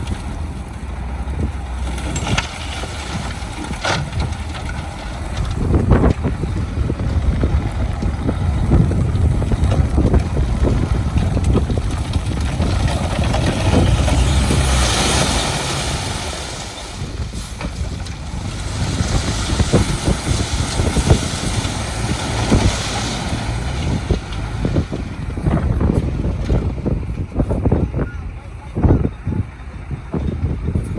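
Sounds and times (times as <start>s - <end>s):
diesel vehicle rumbling: 0.0s - 30.9s
wind buffeting microphone: 0.0s - 30.9s.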